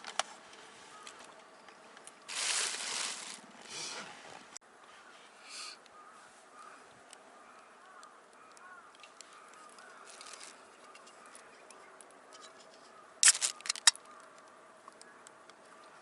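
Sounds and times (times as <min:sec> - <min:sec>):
crows cawing: 0:00.9 - 0:01.3, 0:05.0 - 0:15.4
small ticks: 0:06.6 - 0:16.0
sharp cracks: 0:13.2 - 0:15.3.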